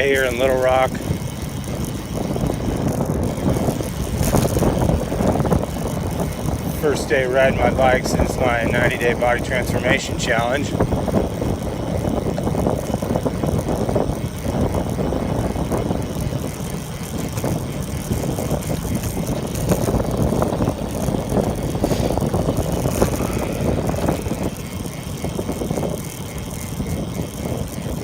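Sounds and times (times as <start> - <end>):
bicycle tyre and drivetrain noise: 0.0 - 28.0
wind on microphone: 0.0 - 28.0.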